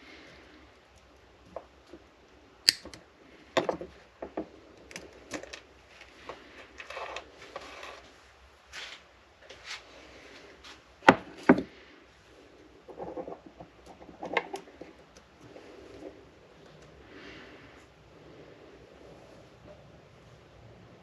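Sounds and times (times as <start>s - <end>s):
small parts clicking and tapping: 0.8s - 7.7s.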